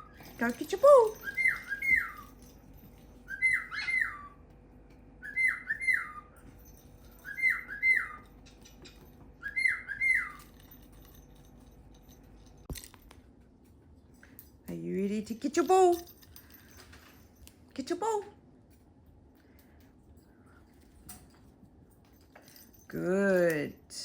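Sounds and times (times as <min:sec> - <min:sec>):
parrot whistling: 0:01.2 - 0:02.3, 0:03.3 - 0:04.4, 0:05.2 - 0:06.4, 0:07.2 - 0:08.3, 0:09.4 - 0:10.4.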